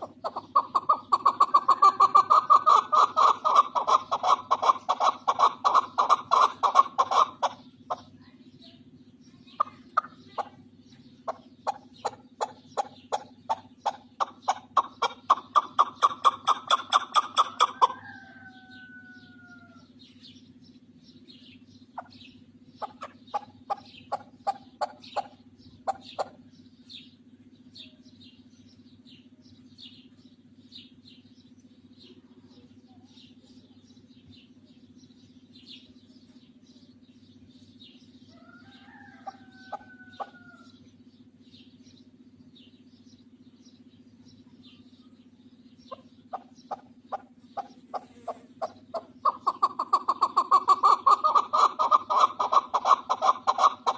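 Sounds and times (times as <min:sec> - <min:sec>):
steady low hum: 0:00.0 - 0:53.9
partridges clucking: 0:09.6 - 0:18.0.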